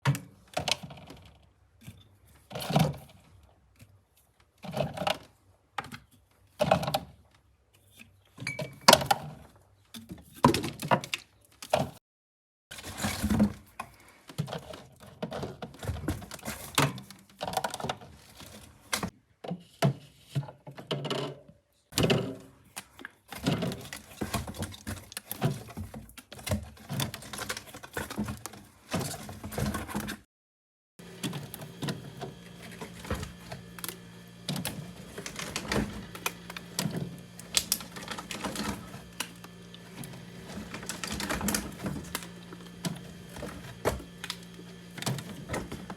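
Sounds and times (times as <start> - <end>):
packaging clicks and knocks: 31.0 - 45.9.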